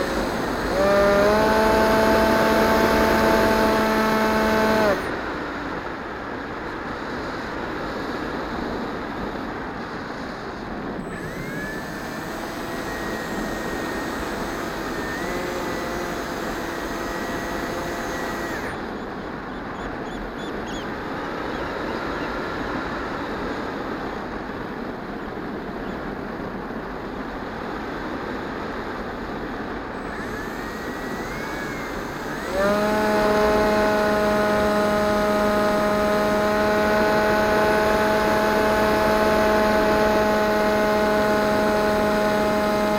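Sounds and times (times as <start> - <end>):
model plane motor whine: 0.0 - 5.6, 10.1 - 19.2, 29.9 - 42.9.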